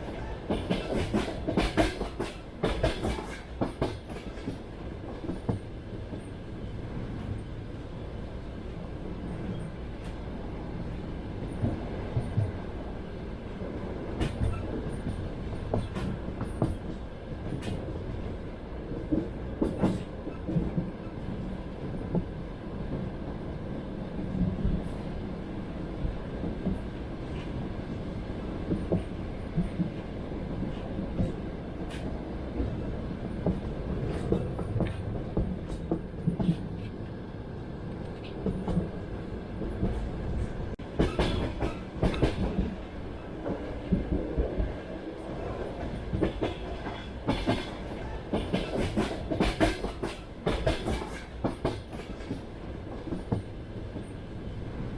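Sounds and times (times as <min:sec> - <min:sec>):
train carriage rumbling: 0:00.0 - 0:54.9
wheels clacking over rail joints: 0:00.4 - 0:06.2, 0:40.8 - 0:54.1.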